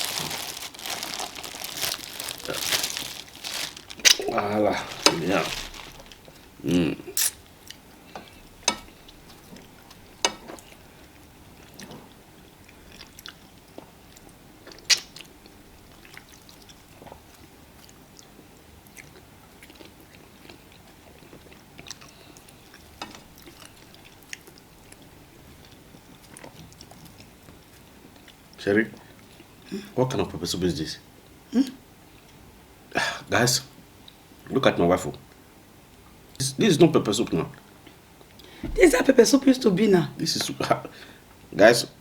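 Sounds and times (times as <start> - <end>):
quiet chewing: 0.0 - 29.6.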